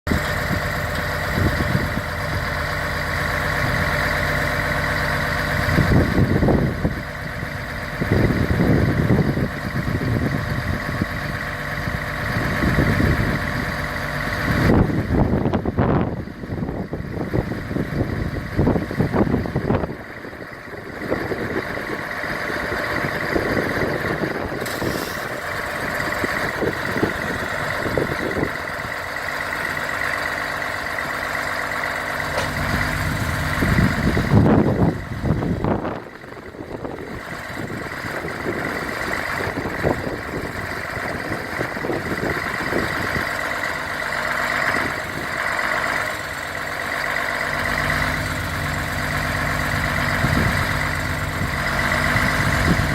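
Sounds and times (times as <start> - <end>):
diesel truck engine idling: 0.1 - 52.9.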